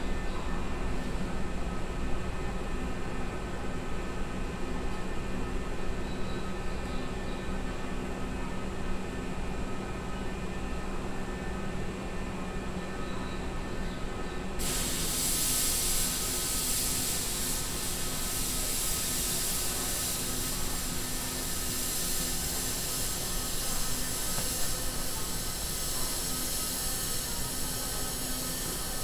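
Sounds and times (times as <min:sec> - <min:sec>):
loud hiss of air: 0:14.6 - 0:29.0
stopped train humming: 0:14.6 - 0:29.0.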